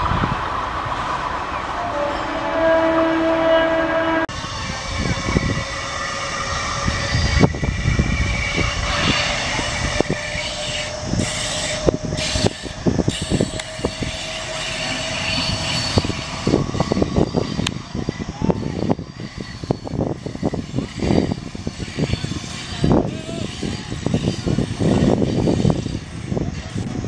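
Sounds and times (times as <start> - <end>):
train rumbling past: 0.0 - 27.0
train horn: 1.8 - 4.3.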